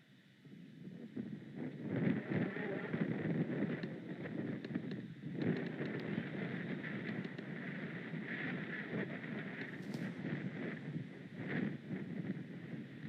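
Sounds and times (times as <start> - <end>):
wind buffeting microphone: 0.8 - 13.0
small ticks of rain: 2.2 - 13.0.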